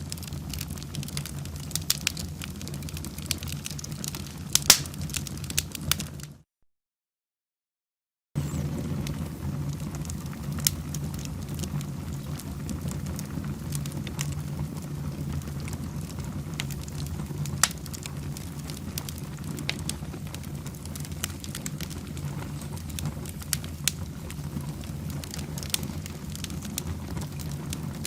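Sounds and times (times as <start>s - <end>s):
fire crackling: 0.0s - 6.4s, 8.4s - 28.0s
low rumble of flames: 0.0s - 6.4s, 8.4s - 28.0s
sharp pops: 4.6s - 5.0s.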